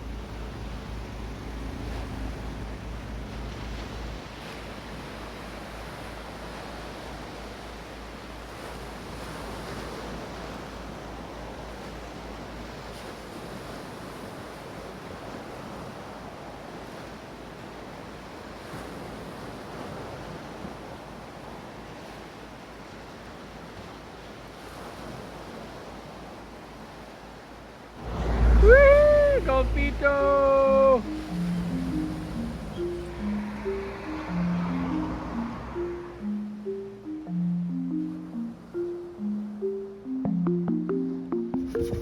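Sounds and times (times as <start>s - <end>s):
sea water: 0.0s - 42.0s
wind: 0.0s - 42.0s
wind buffeting microphone: 28.0s - 35.8s
low rumble: 28.0s - 36.6s.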